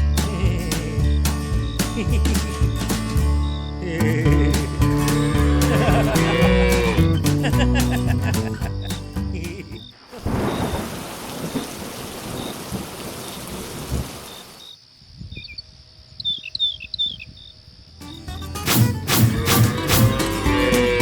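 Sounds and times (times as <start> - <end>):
heavy rain: 10.0 - 14.6
low thunder rumbling: 10.2 - 14.4
short high chirps: 18.7 - 21.0.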